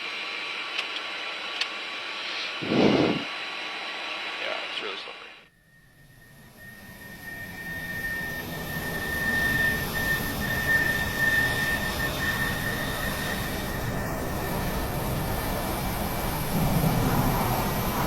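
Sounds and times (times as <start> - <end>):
jet engine whine: 0.0 - 18.0
rush of air noise: 2.2 - 3.4.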